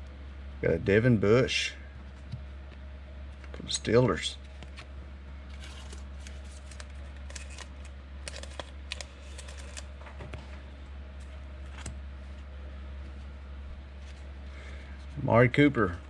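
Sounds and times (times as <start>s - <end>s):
steady low hum: 0.0s - 16.0s
trading cards flipping and sliding: 4.4s - 13.3s, 14.0s - 15.2s.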